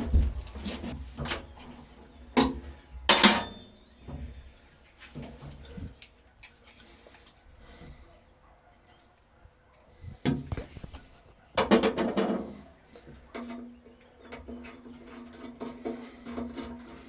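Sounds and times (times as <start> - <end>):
metal clinks and knocks: 2.4 - 4.4
ringing metal clanks: 2.4 - 4.4.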